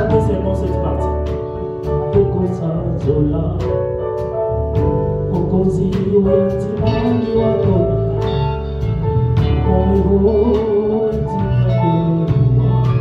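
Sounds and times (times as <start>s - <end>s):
sustained keyboard chords: 0.0s - 13.0s
person singing: 5.3s - 8.6s, 9.4s - 13.0s.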